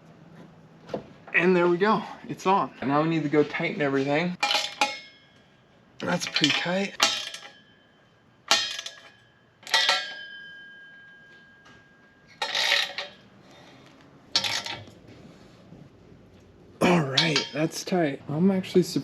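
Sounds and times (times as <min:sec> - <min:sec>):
wrenches clanking on metal: 0:04.4 - 0:05.4, 0:06.0 - 0:07.8, 0:08.5 - 0:10.6, 0:12.2 - 0:15.0, 0:16.8 - 0:17.8.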